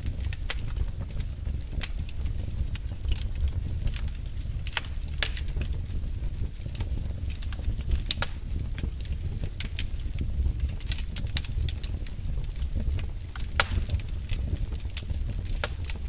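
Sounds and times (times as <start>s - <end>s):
fire crackling and popping: 0.0s - 16.0s
low fire rumble: 0.0s - 16.0s.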